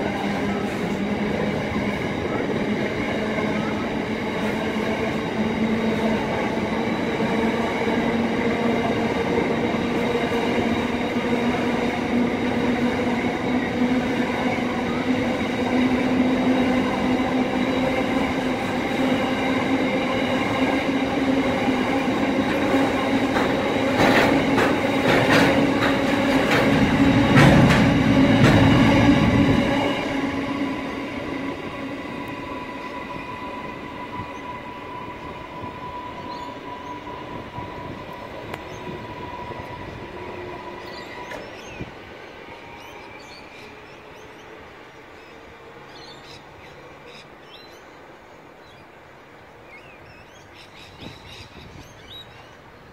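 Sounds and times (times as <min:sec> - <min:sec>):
train wagons rumbling: 0:00.0 - 0:42.2
ringing wheels and rails: 0:00.1 - 0:41.6
clatter over rail joints: 0:23.2 - 0:28.7.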